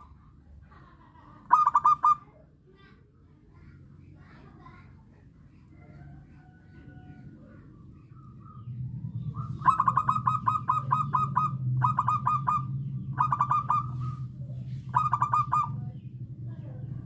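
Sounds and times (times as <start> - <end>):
low steady hum: 0.0 - 17.0
dove cooing: 1.5 - 2.2, 6.0 - 16.1.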